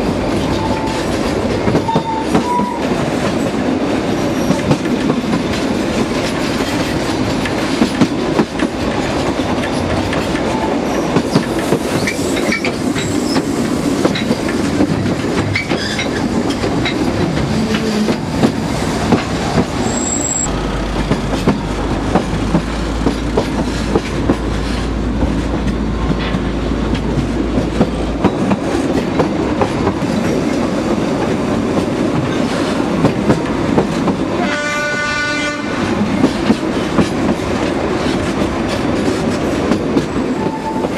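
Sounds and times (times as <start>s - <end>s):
train wheels clicking over rail joints: 0.0s - 34.4s, 35.8s - 40.9s
train rumble: 0.0s - 40.9s
train horn blast: 34.4s - 35.9s.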